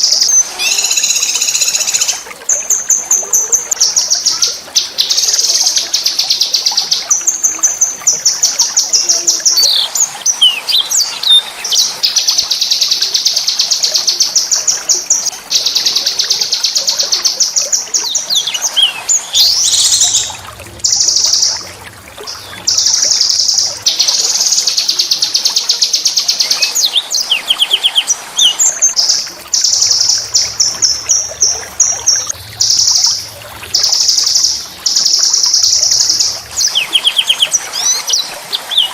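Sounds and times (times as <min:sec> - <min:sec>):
bird sweeping notes: 0:00.0 - 0:02.2.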